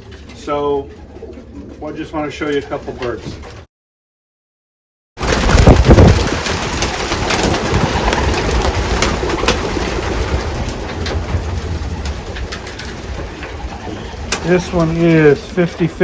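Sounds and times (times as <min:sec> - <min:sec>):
pigeons cooing: 0:00.0 - 0:03.5, 0:12.1 - 0:15.9.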